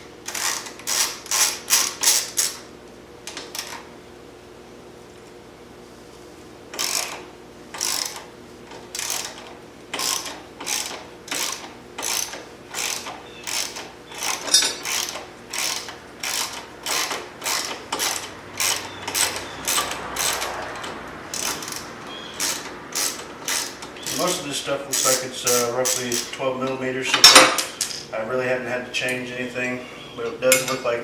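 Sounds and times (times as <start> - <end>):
ratchet wrench clicking: 0.3 - 2.6, 6.7 - 7.2, 7.8 - 8.3, 8.9 - 26.4.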